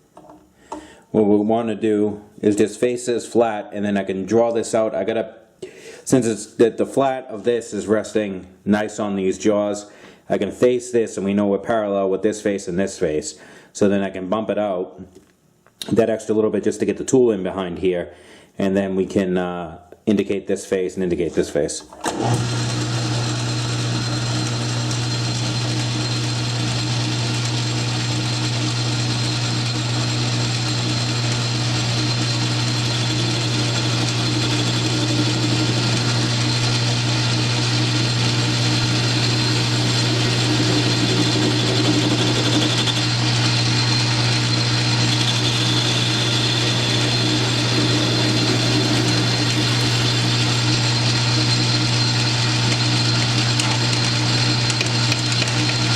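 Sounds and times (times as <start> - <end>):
metal lathe humming: 22.1 - 55.9.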